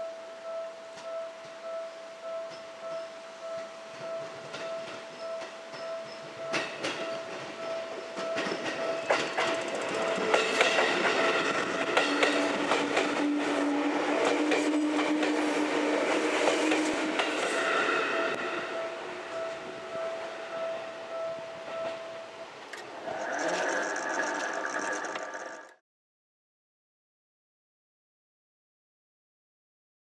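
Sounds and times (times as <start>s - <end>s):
thin ringing tone: 0.0s - 10.2s
train wheels clicking over joints: 4.4s - 18.4s.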